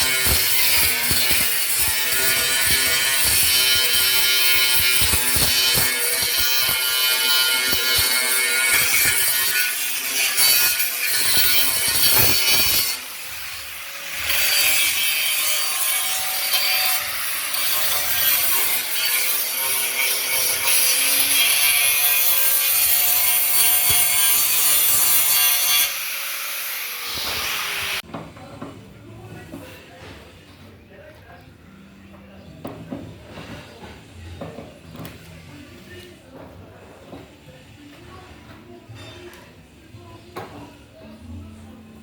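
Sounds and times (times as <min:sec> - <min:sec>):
tool rasping on a surface: 0:00.0 - 0:13.1.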